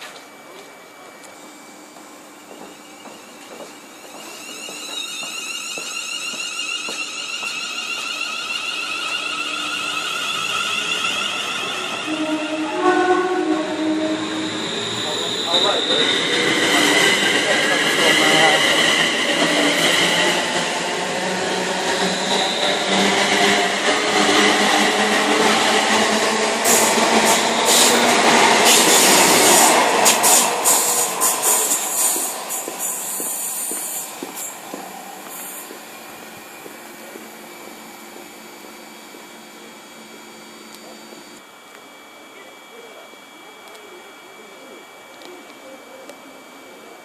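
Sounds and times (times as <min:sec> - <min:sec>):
train whine and hiss: 0:00.0 - 0:47.0
train horn: 0:12.0 - 0:14.5
high hiss bursts: 0:26.6 - 0:35.9.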